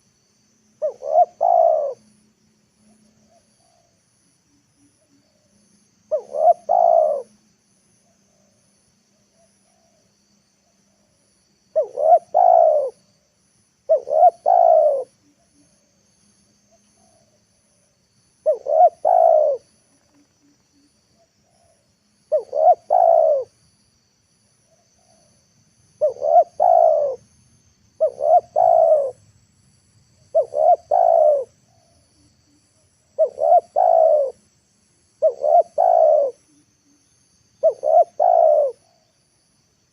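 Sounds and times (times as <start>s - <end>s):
dove cooing: 0.8s - 2.1s, 6.1s - 7.3s, 11.7s - 13.0s, 13.9s - 15.2s, 18.4s - 20.2s, 21.5s - 23.5s, 26.0s - 27.2s, 28.0s - 29.2s, 30.3s - 31.9s, 33.2s - 34.4s, 35.2s - 36.5s, 37.6s - 39.0s.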